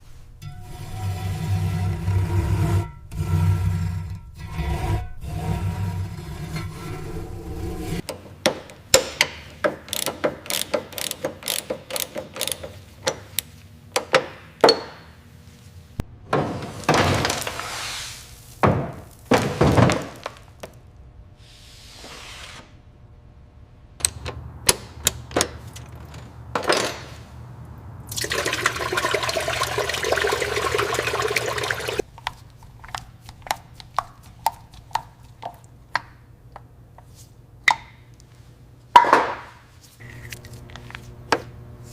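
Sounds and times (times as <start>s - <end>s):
sharp clicks and knocks: 8.0s - 14.9s
steady hissing air blast: 21.4s - 22.8s.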